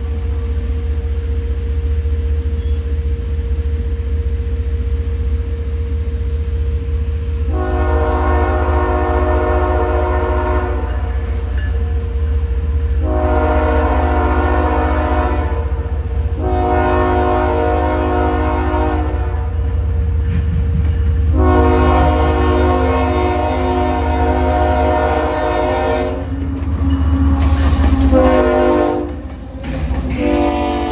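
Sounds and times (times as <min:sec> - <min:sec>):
passing train rumble: 0:00.0 - 0:30.9
locomotive air horn blasts: 0:07.5 - 0:11.9, 0:12.8 - 0:19.7, 0:21.3 - 0:26.4, 0:27.4 - 0:29.3, 0:30.1 - 0:30.9.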